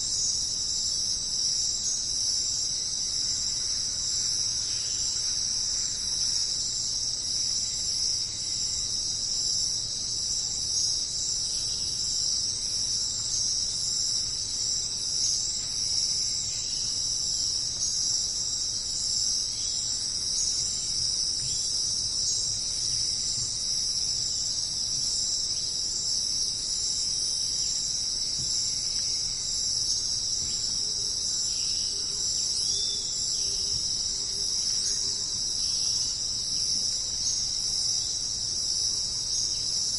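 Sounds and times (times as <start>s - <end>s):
crickets chirping: 0.0s - 39.9s
faint bird chirps: 28.5s - 36.2s.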